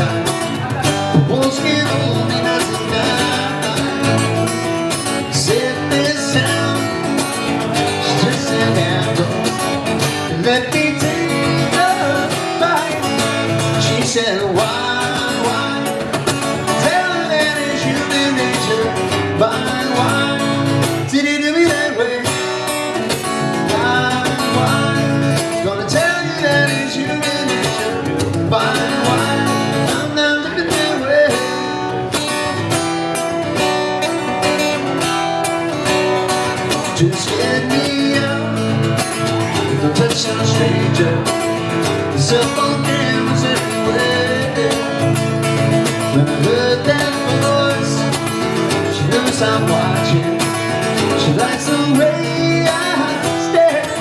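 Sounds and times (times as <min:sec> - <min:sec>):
acoustic guitar music: 0:00.0 - 0:54.0.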